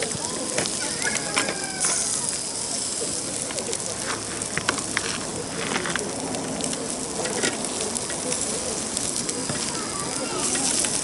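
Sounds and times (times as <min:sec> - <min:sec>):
cooking fire crackling: 0:00.0 - 0:11.0
sizzling hiss: 0:00.0 - 0:11.0.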